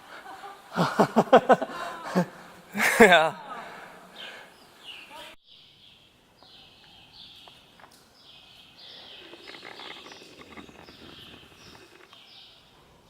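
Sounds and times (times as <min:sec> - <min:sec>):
bird chirping: 0:03.7 - 0:13.0.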